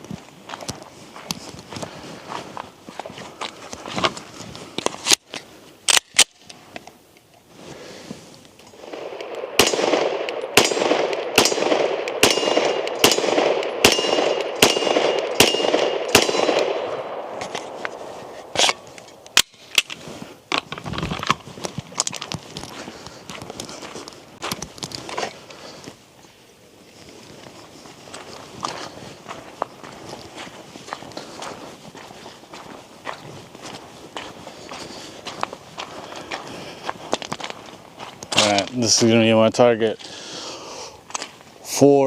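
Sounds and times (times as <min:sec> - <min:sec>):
pistol shots: 0:08.8 - 0:19.6
steel target ringing: 0:12.2 - 0:16.6.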